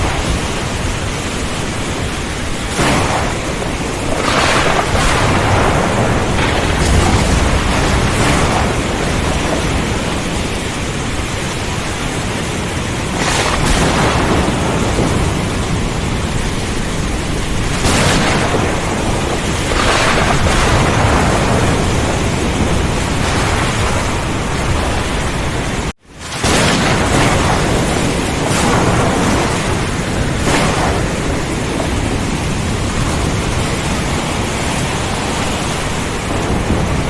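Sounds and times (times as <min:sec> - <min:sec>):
heavy rain: 0:00.0 - 0:37.0
low rumble of thunder: 0:00.0 - 0:37.0
strong wind: 0:00.0 - 0:37.0.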